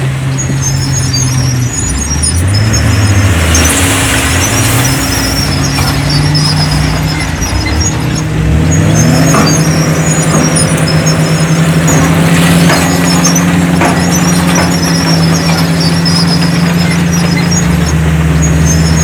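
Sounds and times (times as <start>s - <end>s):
heavy diesel engine revving: 0.0s - 19.0s
high squeaks: 0.0s - 19.0s.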